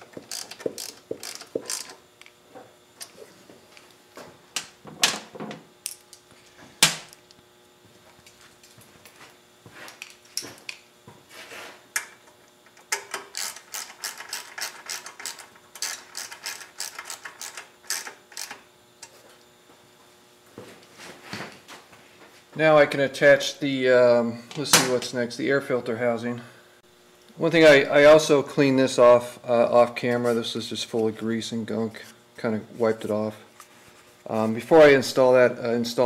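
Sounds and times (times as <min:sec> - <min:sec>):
ratchet wrench clicking: 0:00.2 - 0:02.0, 0:12.9 - 0:18.6.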